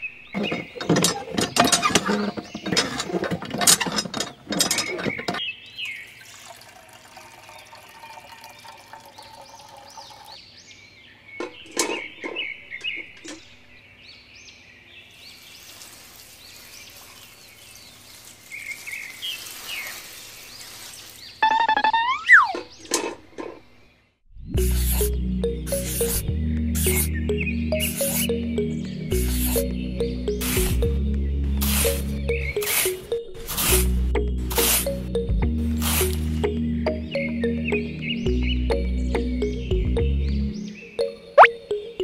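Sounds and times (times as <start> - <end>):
toy pump handle clatter: 0.4 - 5.4, 11.4 - 13.5, 31.6 - 33.9
water trickling and pouring: 5.8 - 10.4, 15.3 - 21.4
water splashing into tin bucket: 6.1 - 10.1.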